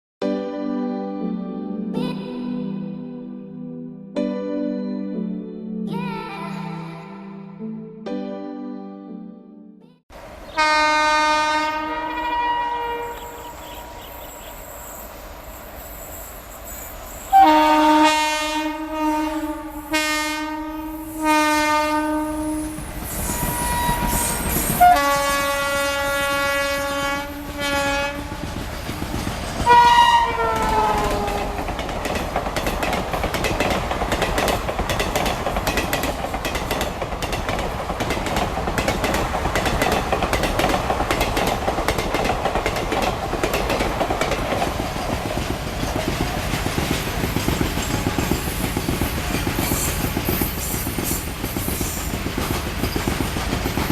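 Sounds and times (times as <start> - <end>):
train horn blasts: 10.5 - 14.3, 17.3 - 29.0, 29.6 - 31.7, 47.8 - 51.0
train wheels clattering over rail joints: 30.5 - 53.9.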